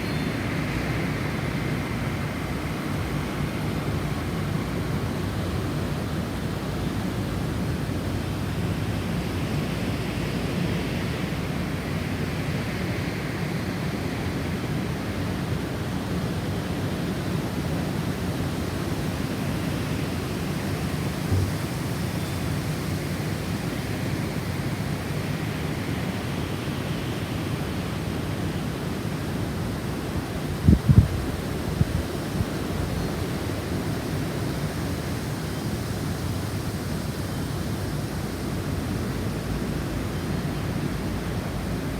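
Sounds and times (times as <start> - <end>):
low thump: 21.3 - 21.7
gusty snowstorm wind: 29.6 - 37.1.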